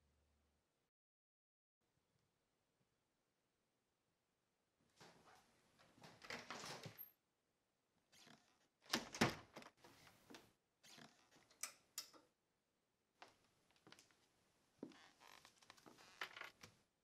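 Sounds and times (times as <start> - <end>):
knocks and scrapes of person moving: 4.9 - 7.0, 14.8 - 16.8.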